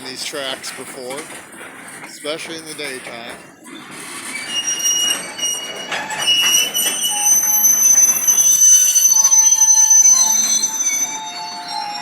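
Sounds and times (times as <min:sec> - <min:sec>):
knocks and clanks: 0:00.0 - 0:07.3
train wheels squealing on rails: 0:00.0 - 0:12.0.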